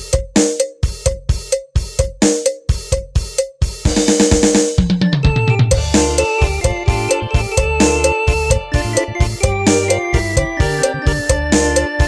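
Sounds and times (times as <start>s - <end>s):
drum machine beat: 0.0s - 12.0s
keyboard notes: 5.0s - 12.0s
falling bass line: 5.3s - 12.0s.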